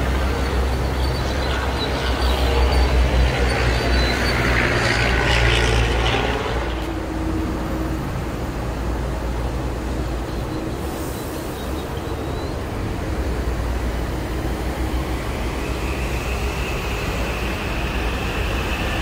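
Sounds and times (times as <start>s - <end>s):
train passing: 0.0s - 19.0s
wheels rumbling on rail: 0.0s - 19.0s
rushing hiss of train: 5.8s - 19.0s.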